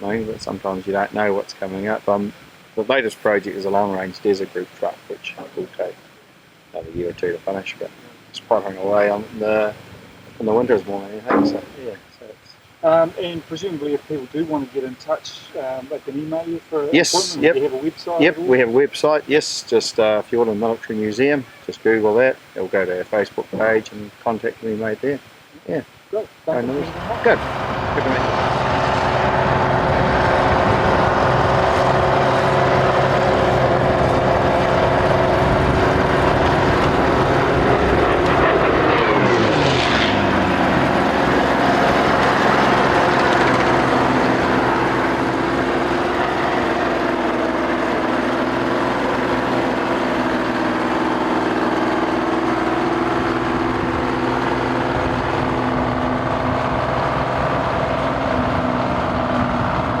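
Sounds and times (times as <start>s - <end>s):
tone sweeping down in pitch: 10.5s - 12.0s, 16.8s - 19.2s
large engine running: 26.9s - 60.0s.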